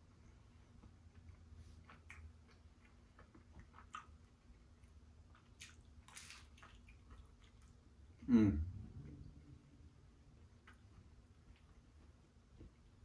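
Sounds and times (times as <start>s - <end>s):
wet chewing clicks: 0.8s - 7.8s.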